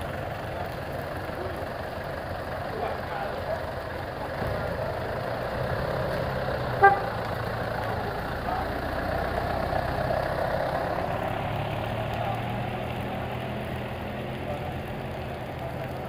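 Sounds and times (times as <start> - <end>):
off-road engines running: 0.0 - 16.0
car horn toot: 6.8 - 7.1.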